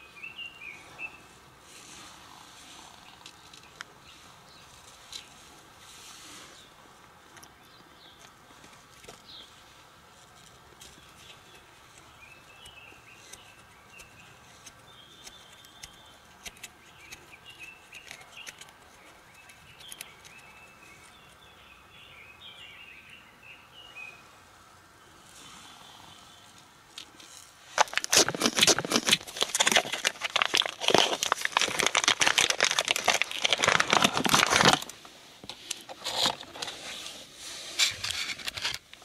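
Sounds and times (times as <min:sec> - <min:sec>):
birds chirping: 0:00.0 - 0:05.4, 0:06.4 - 0:09.6, 0:10.6 - 0:27.2.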